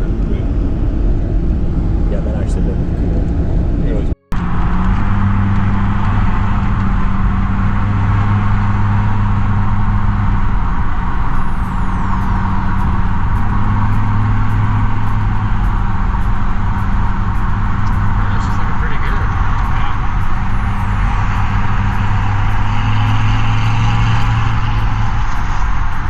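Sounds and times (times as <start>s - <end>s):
road noise: 0.0s - 26.0s
vehicle engine drone: 0.0s - 26.0s.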